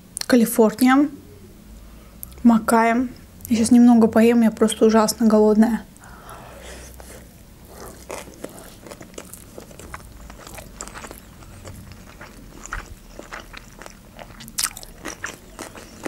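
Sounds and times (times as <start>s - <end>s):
chewing with crunches: 6.8s - 16.0s.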